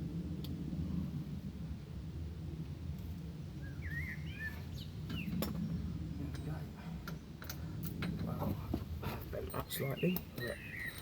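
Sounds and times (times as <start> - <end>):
low outdoor rumble: 0.0 - 11.0
bird chirping: 3.6 - 5.8, 9.6 - 11.0.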